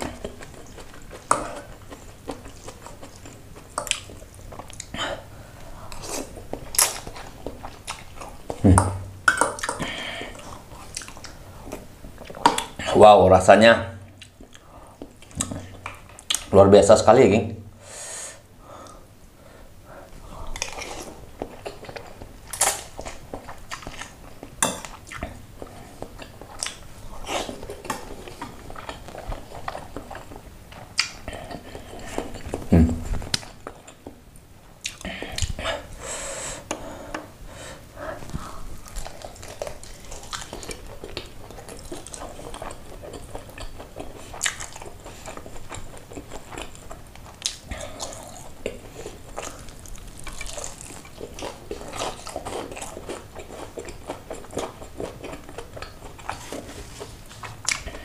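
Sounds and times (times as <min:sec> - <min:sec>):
person chewing crispy chicken: 0:38.4 - 0:58.0.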